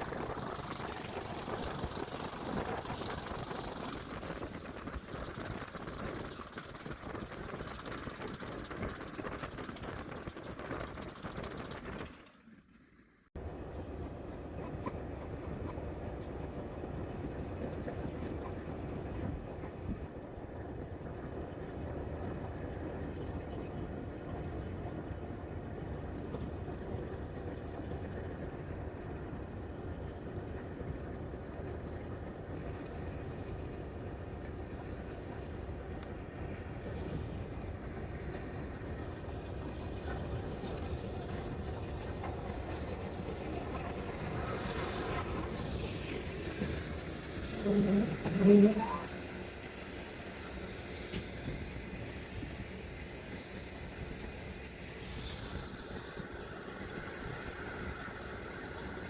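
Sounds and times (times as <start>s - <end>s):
train wheels rumbling on rails: 13.4s - 59.0s.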